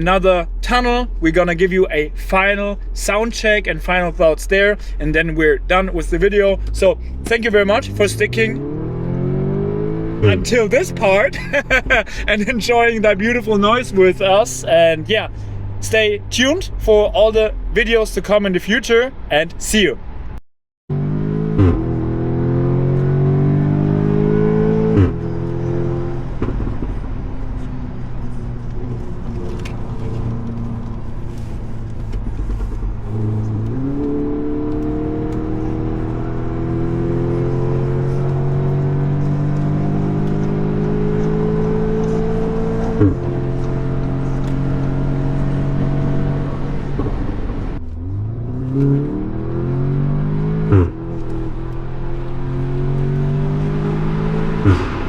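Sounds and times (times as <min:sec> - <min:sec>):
car engine accelerating through gears: 0:05.3 - 0:16.3, 0:20.9 - 0:55.0
exhaust bark on upshift: 0:06.1 - 0:17.2, 0:21.1 - 0:27.0, 0:28.4 - 0:55.0.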